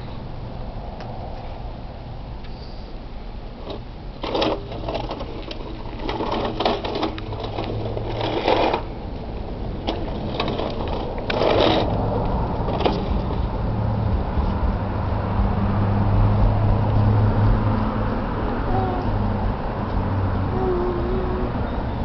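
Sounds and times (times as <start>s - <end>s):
toy truck clattering and clicking: 3.6s - 8.9s, 9.8s - 12.0s, 12.6s - 13.4s.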